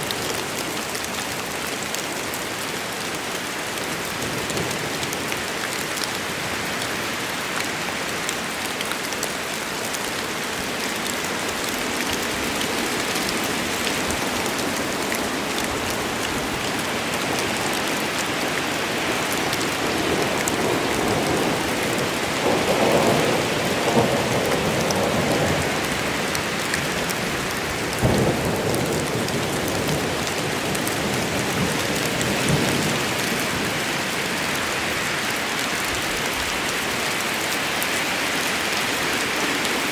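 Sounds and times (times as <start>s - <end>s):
steady rain in a forest: 0.0s - 39.9s
thunder rumbling: 11.3s - 26.3s.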